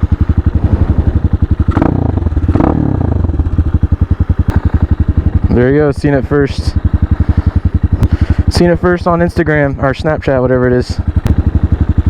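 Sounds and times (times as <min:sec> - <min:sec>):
rushes of noise: 0:00.0 - 0:03.4
motorcycle engine idling: 0:00.0 - 0:12.0.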